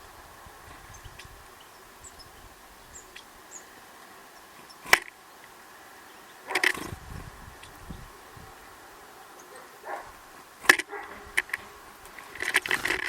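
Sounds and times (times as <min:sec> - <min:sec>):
small birds chirping: 0:00.0 - 0:13.0
sharp click: 0:04.8 - 0:05.2.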